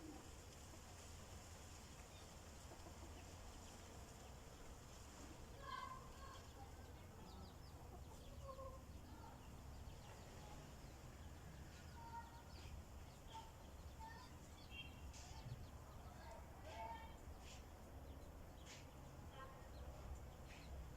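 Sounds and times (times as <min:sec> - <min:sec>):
chickens clucking: 0:00.0 - 0:14.5.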